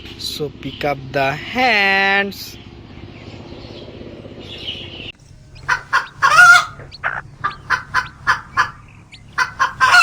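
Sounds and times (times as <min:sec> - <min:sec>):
hen clucking and squawking: 0:05.2 - 0:10.0.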